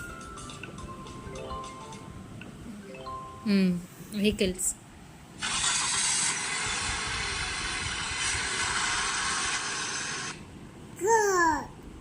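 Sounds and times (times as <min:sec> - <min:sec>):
toy vehicle sound effect hiss: 0:05.4 - 0:10.4.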